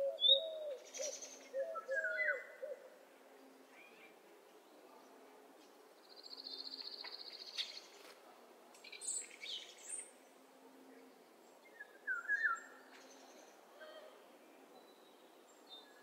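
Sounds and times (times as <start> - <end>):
whistled bird notes: 11.7 - 12.7.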